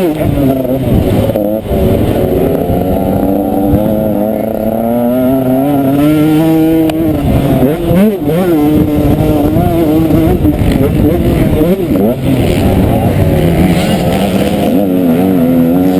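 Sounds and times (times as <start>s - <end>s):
motocross bike engine revving: 0.0s - 15.9s.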